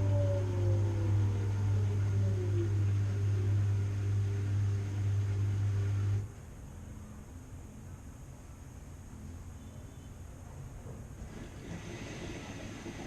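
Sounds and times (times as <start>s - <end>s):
washing machine humming: 0.0s - 6.4s, 11.2s - 13.0s
faint hiss: 2.8s - 13.0s.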